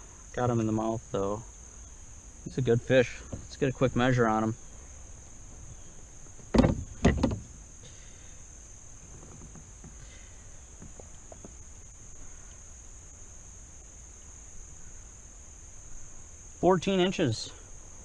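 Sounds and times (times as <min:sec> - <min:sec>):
loud knocks: 0:06.4 - 0:07.5.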